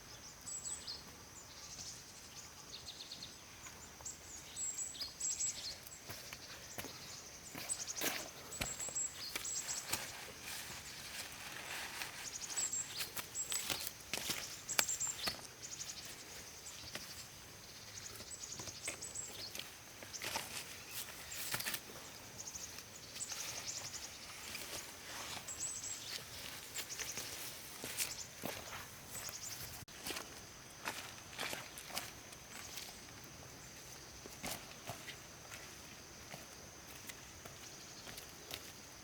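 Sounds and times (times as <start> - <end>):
rustling footsteps outdoors: 0.0 - 39.0.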